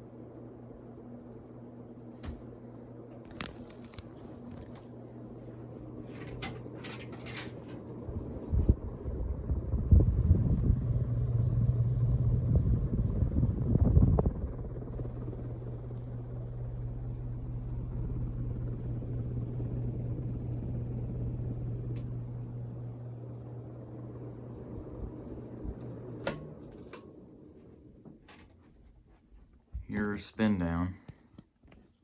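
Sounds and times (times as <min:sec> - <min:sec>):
ceiling fan motor humming: 0:00.0 - 0:31.8
gusty low rumble: 0:08.0 - 0:22.6.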